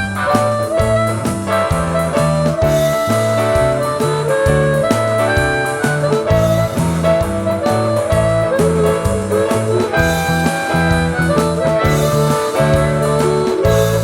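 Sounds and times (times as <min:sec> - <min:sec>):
blues-rock band playing: 0:00.0 - 0:14.0
lead guitar with bent notes: 0:00.0 - 0:14.0.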